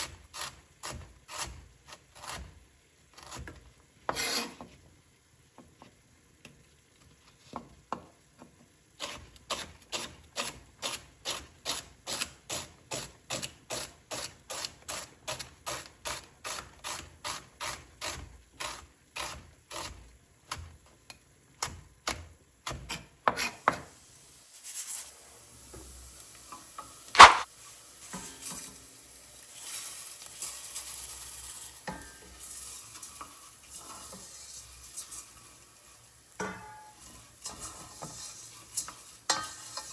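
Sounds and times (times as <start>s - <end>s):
rice sizzling in pan: 0.0s - 39.9s
knife chopping on cutting board: 27.2s - 27.5s
sharp metal clank: 27.2s - 27.5s.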